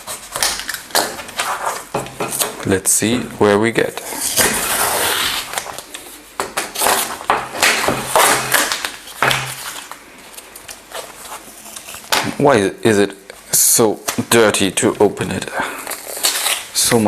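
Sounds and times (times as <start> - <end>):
paper and cardboard tearing: 4.0 - 5.9, 15.8 - 17.0.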